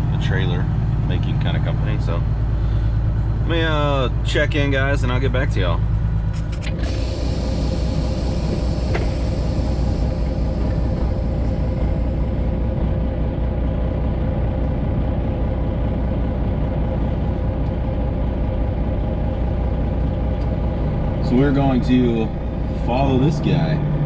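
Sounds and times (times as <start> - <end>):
truck diesel engine idling: 0.0 - 24.0
faint steady hum: 6.7 - 13.2.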